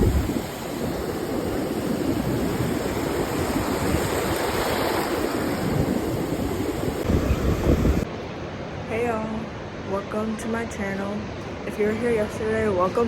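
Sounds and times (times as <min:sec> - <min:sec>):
wind buffeting microphone: 0:00.0 - 0:08.1
ocean surf: 0:00.0 - 0:13.0.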